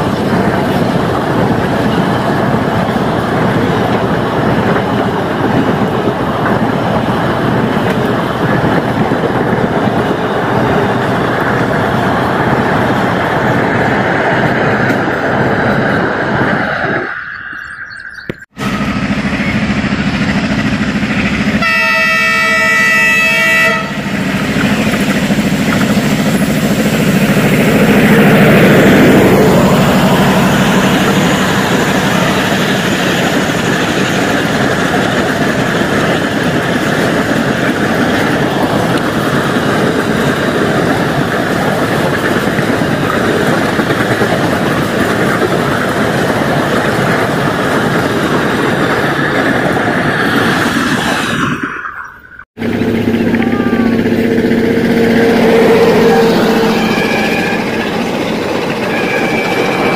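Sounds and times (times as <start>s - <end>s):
train coaches rushing on rails: 0.0s - 59.9s
locomotive horn: 21.6s - 24.9s, 52.6s - 59.9s.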